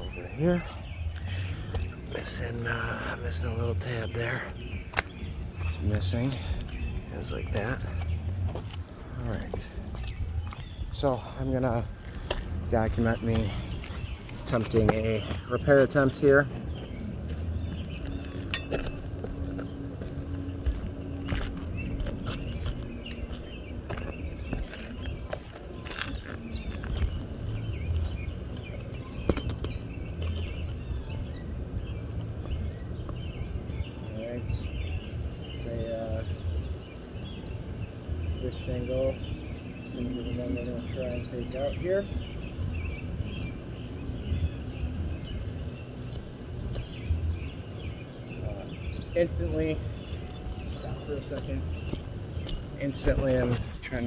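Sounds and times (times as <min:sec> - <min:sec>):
birds chirping: 0:00.0 - 0:54.0
scuffs and clicks on shingle roof: 0:04.4 - 0:35.5, 0:49.4 - 0:54.0.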